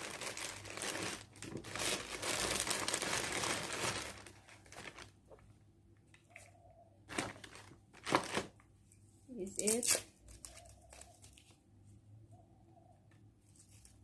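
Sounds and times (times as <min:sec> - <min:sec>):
packaging crinkling: 0:00.0 - 0:05.4, 0:07.1 - 0:08.6.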